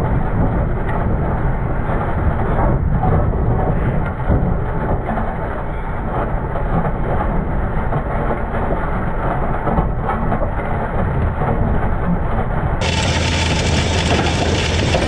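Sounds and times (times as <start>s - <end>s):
tractor diesel engine rumbling: 12.8s - 15.0s.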